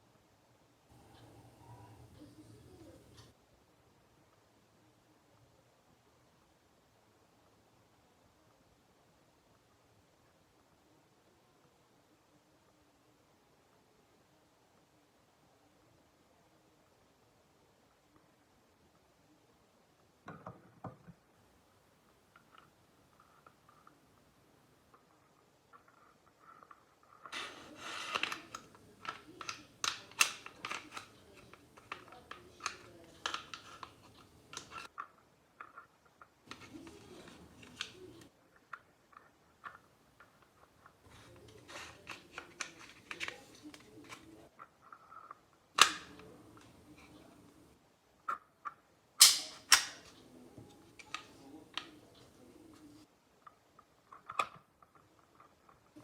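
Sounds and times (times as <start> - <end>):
gun mechanical clicks: 45.8 - 46.7, 49.2 - 50.2
air pistol mechanical clicks: 49.2 - 50.1.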